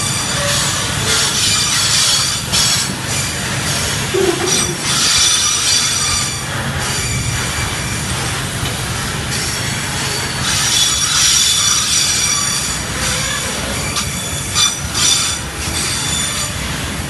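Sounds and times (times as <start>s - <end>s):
metallic wheel squealing: 0.0s - 17.0s
train wheels rumbling on track: 0.0s - 17.0s.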